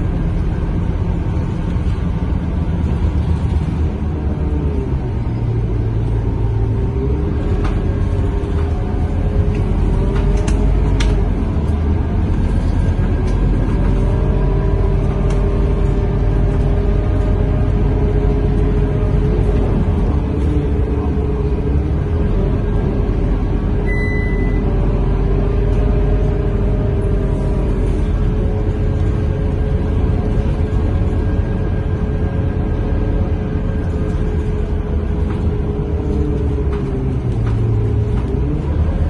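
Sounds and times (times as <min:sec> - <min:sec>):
bus engine humming: 0:00.0 - 0:39.0
road rumble: 0:00.0 - 0:39.0
short high beep: 0:23.8 - 0:24.7.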